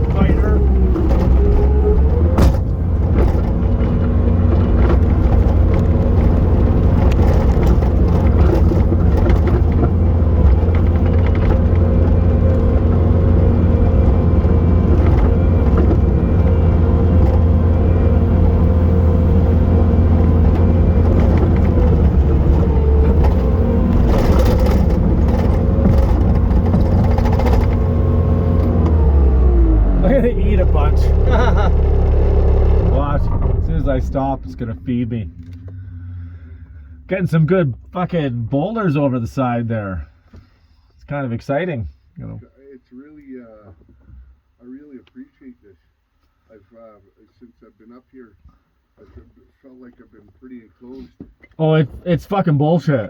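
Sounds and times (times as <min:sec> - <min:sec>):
diesel engine running at high revs: 0:00.0 - 0:37.8.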